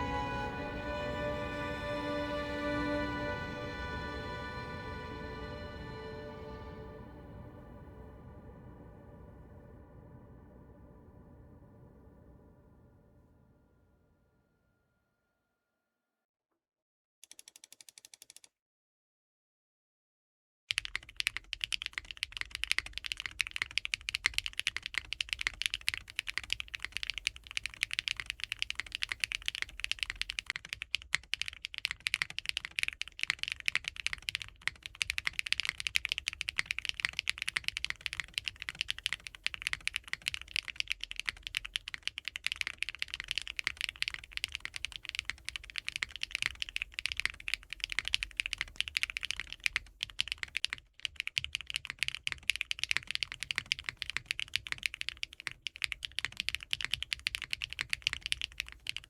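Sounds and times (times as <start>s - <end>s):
fast mechanical keyboard typing: 20.7s - 59.0s.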